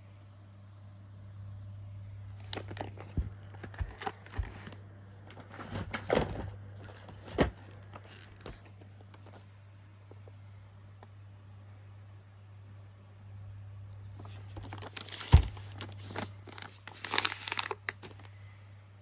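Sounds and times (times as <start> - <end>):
plastic wrapping crinkling: 2.4 - 9.4, 14.2 - 18.3.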